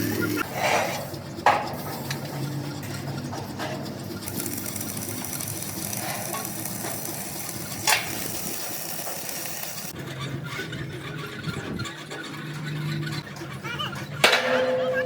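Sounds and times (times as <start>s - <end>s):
welding sizzling crackle: 4.2s - 10.0s.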